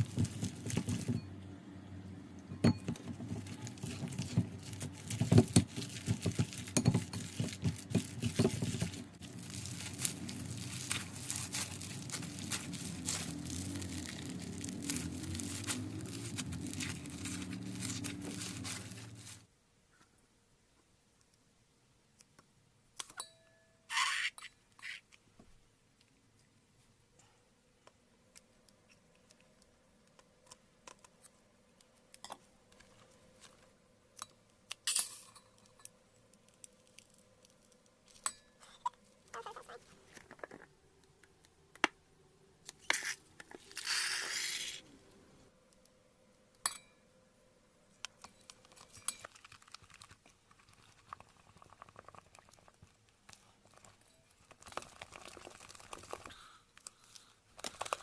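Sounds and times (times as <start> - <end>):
plastic crinkling: 0.0 - 1.3, 2.9 - 19.5, 48.1 - 58.0.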